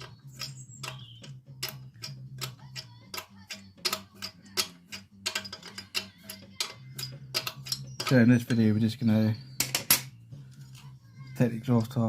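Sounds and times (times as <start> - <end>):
spanner clicking on metal: 0.0 - 8.2.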